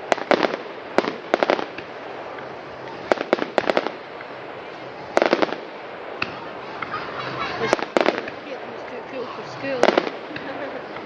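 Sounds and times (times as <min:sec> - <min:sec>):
background hiss: 0:00.0 - 0:11.0
fireworks exploding: 0:00.0 - 0:11.0.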